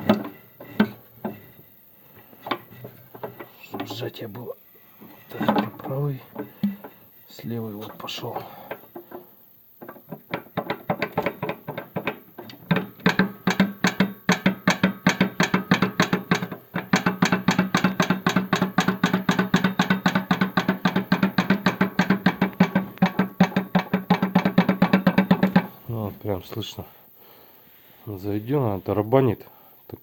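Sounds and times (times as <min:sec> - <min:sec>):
snowmobile engine knocking: 0:10.6 - 0:25.7.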